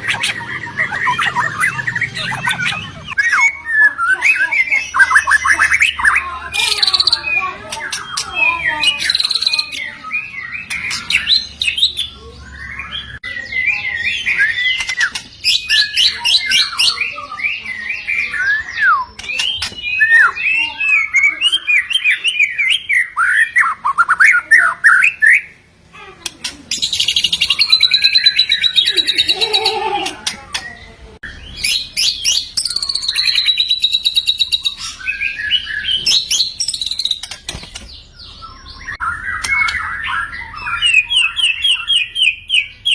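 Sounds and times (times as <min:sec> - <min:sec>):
songbird whistling song: 0:00.0 - 0:25.6, 0:26.7 - 0:42.9
dry rattling bird chatter: 0:04.5 - 0:10.0, 0:10.6 - 0:12.2, 0:14.2 - 0:17.2, 0:19.2 - 0:21.3, 0:35.9 - 0:38.2.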